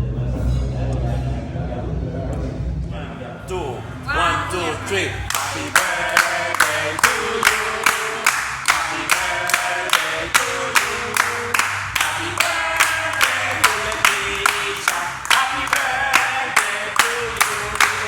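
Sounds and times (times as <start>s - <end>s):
group of voices singing: 1.3s - 18.0s
sharp percussive beat: 5.3s - 18.0s.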